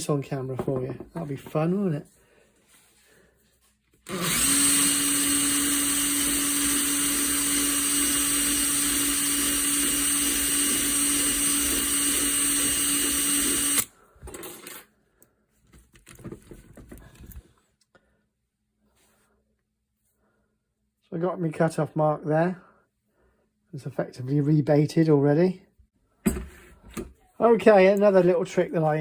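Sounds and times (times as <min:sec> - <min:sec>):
cordless drill running: 0:04.0 - 0:14.0.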